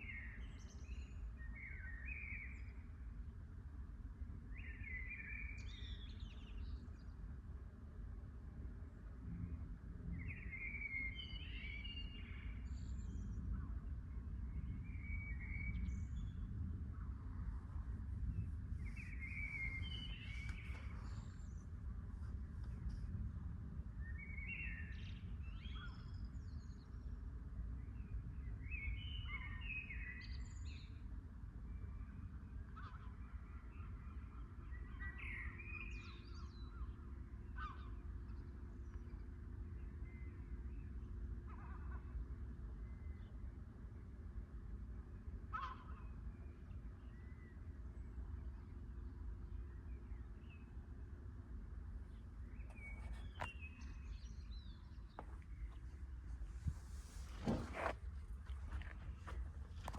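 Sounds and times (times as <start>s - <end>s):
low background rumble: 0.0s - 59.9s
birds calling: 45.5s - 46.3s
birds chirping: 52.1s - 59.9s.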